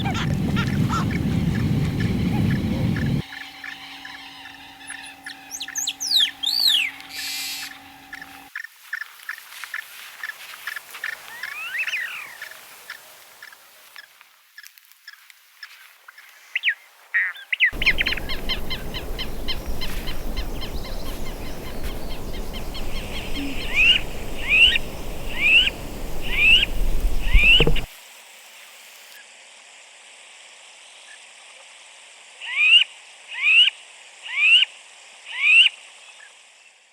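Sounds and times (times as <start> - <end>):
low rumble: 0.0 - 3.2
upward-sweeping bird call: 0.0 - 8.4, 17.8 - 27.9
wild birds chirping: 0.0 - 8.5, 17.8 - 27.9.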